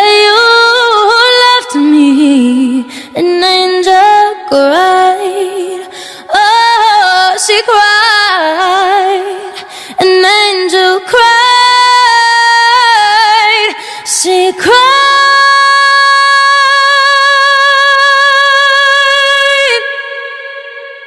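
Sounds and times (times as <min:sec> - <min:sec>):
woman singing without words: 0:00.0 - 0:21.0.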